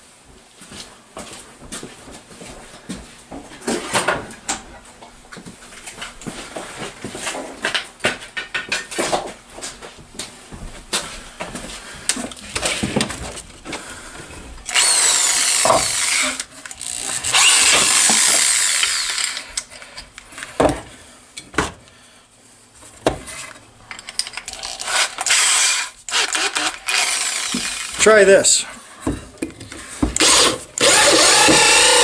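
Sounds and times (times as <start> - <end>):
power drill spinning hole saw: 14.6 - 19.7, 24.5 - 28.1, 30.2 - 32.0.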